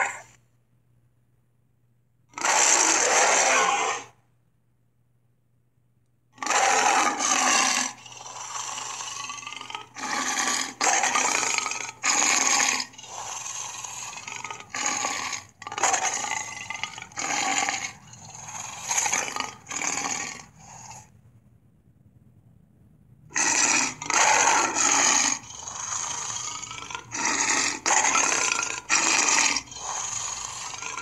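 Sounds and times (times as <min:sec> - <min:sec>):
cartoon dinosaur roaring and growling: 0:00.0 - 0:00.3, 0:02.3 - 0:04.2, 0:06.4 - 0:21.1, 0:23.3 - 0:31.0.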